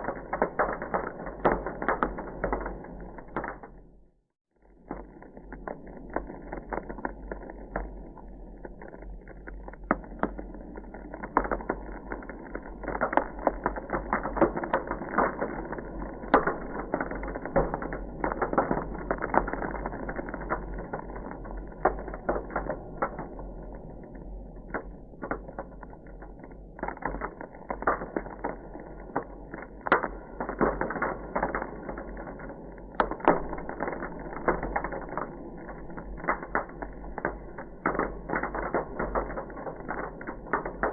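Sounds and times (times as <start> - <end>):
ice crackling: 4.8 - 20.7, 24.2 - 40.9.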